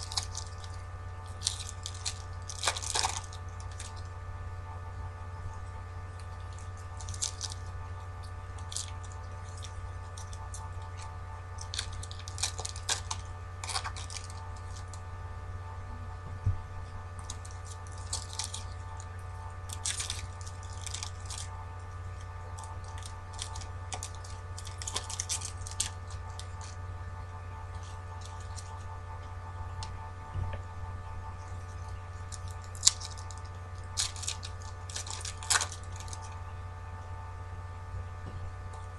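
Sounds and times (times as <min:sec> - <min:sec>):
foil packs crinkling: 0:00.0 - 0:04.2, 0:06.2 - 0:15.0, 0:17.2 - 0:26.8, 0:27.7 - 0:28.9, 0:31.5 - 0:36.4
electrical hum: 0:00.0 - 0:38.9.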